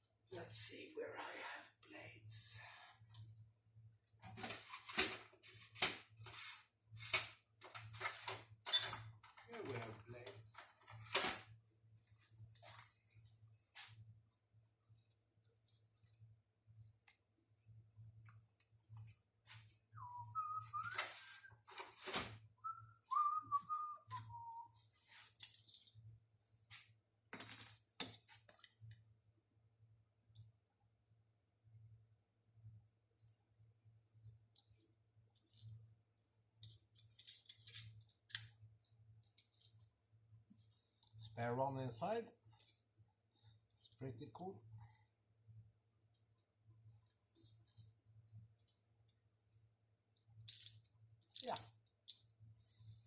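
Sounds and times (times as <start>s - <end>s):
person whistling a tune: 20.0s - 21.5s, 22.6s - 24.8s.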